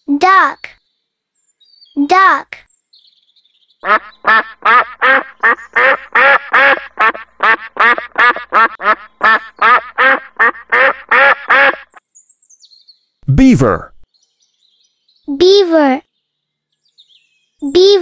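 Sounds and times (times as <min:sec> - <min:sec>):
duck quacking: 0:03.8 - 0:12.0.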